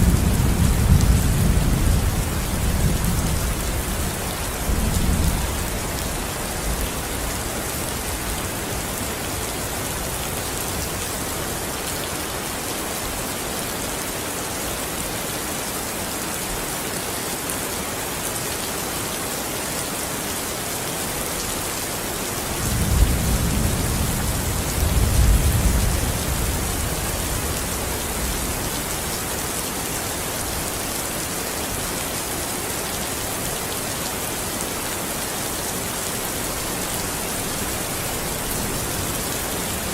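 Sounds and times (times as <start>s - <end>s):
low rumble of thunder: 0.0s - 5.8s, 22.5s - 28.7s
steady rain falling: 0.0s - 39.9s.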